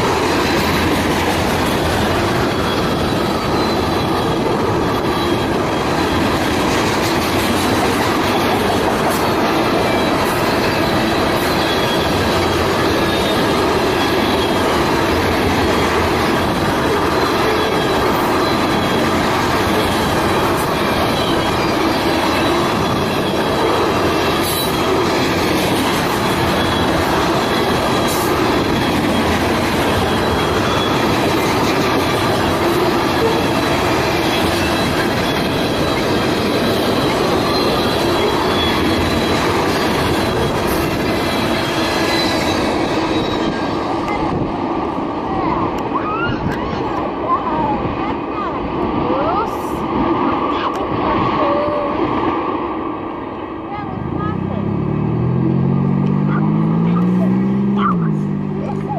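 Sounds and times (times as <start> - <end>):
wheels squealing on rail: 0.0 - 52.6
railcars rolling past: 0.0 - 58.9.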